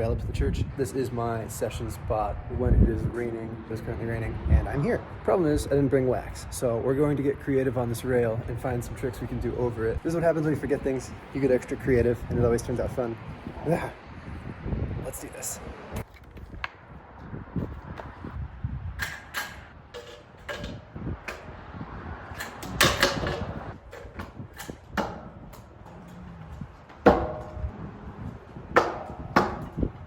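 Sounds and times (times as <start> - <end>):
scooter knocking on ground and rail: 19.0 - 21.5, 22.3 - 27.9, 28.7 - 30.0.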